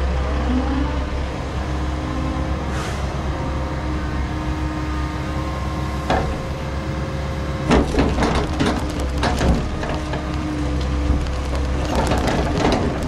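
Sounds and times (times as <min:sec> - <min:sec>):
heavy diesel engine running: 0:00.0 - 0:13.0
logs clattering together: 0:07.7 - 0:13.0.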